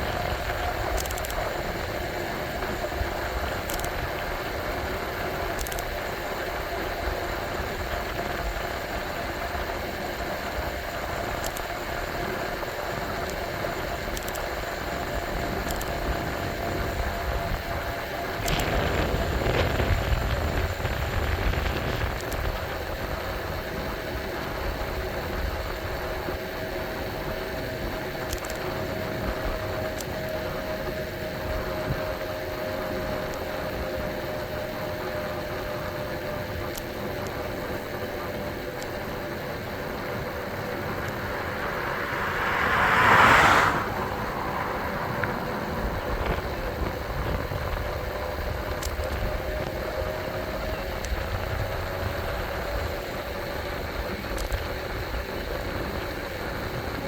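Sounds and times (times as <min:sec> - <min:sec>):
road rumble: 0:00.0 - 0:57.0
wind: 0:00.0 - 0:57.0
vehicle passing: 0:37.9 - 0:47.8.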